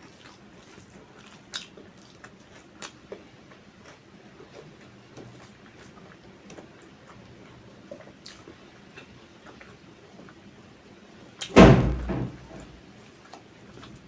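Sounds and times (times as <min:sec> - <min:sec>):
faint chewing: 0:00.0 - 0:10.6, 0:13.0 - 0:14.0
loud thump: 0:11.6 - 0:12.8.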